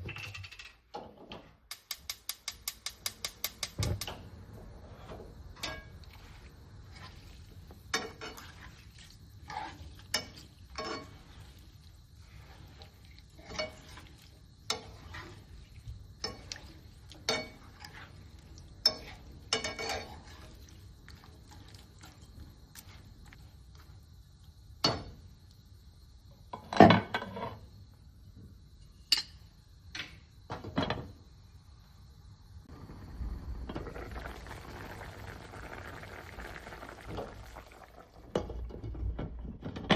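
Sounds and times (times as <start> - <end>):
cookware and utensils clattering: 0.0 - 4.3, 5.5 - 6.3, 7.9 - 8.8, 9.5 - 11.5, 13.3 - 14.1, 16.2 - 18.2, 18.8 - 20.6.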